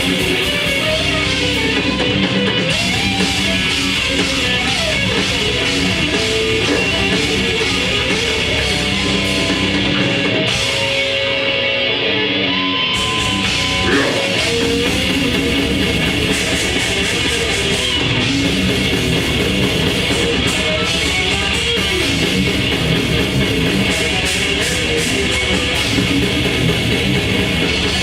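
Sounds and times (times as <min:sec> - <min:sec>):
bass: 0:00.0 - 0:28.0
distorted electric guitar: 0:00.0 - 0:28.0
drums: 0:00.0 - 0:28.0
sustained guitar note: 0:04.6 - 0:16.3.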